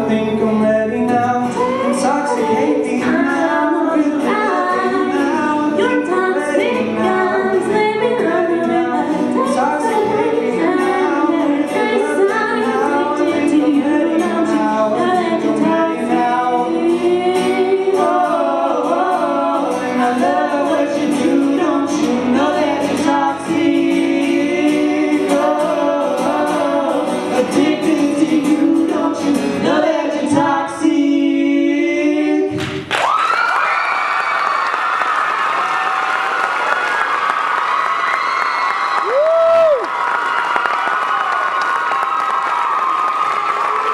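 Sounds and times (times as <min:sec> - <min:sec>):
voices singing in harmony: 0:00.0 - 0:32.6
applause: 0:32.6 - 0:43.9
high-pitched screams: 0:33.0 - 0:43.9.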